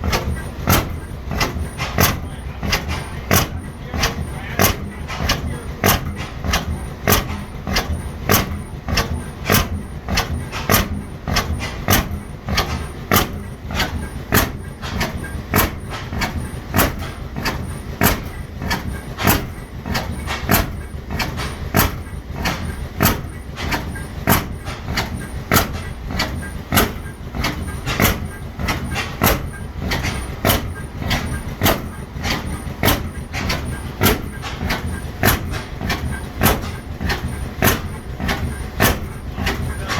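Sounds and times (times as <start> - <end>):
faint engine clicks: 0.0 - 39.9
hit-and-miss engine running: 0.0 - 39.9.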